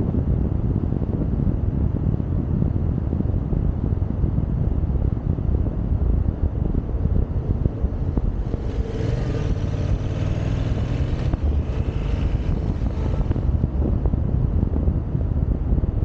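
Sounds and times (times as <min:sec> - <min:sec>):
wind buffeting microphone: 0:00.0 - 0:16.0
motorcycle engine: 0:06.8 - 0:14.6.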